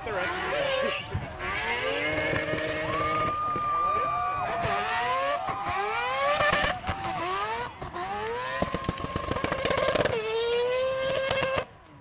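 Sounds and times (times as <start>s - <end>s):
rotary engine revving: 0.0s - 3.6s, 4.4s - 11.7s
exhaust pops crackling: 6.4s - 10.3s.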